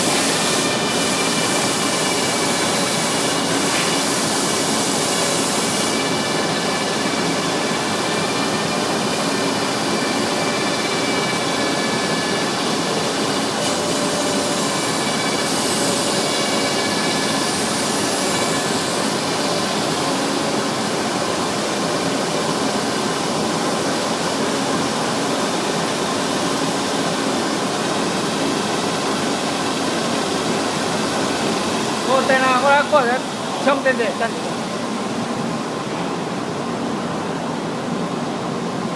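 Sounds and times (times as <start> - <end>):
sanding machine running: 0.0 - 20.6.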